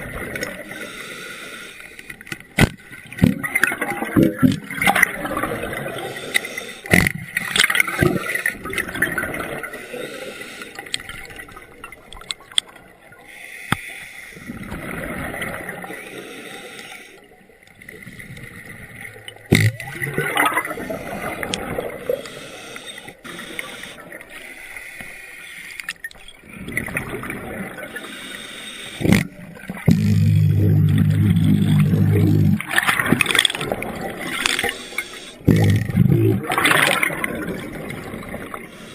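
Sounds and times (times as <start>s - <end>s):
regulator bubbles gurgling: 2.5s - 6.3s, 6.9s - 9.8s, 14.5s - 16.0s, 17.7s - 22.2s, 26.1s - 28.1s, 29.0s - 34.8s, 35.4s - 38.8s.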